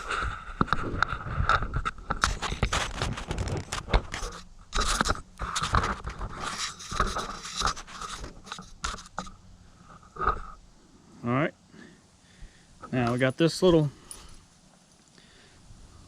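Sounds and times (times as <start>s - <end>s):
rope scraping through pulley: 0.0s - 9.3s.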